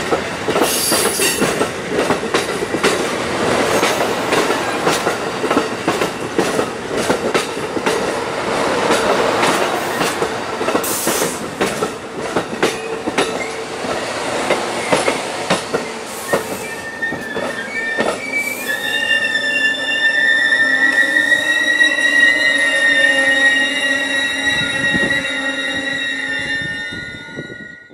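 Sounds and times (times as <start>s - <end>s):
train wheels clicking on rail joints: 0.0s - 19.0s
wheel and brake squeal: 15.8s - 27.9s.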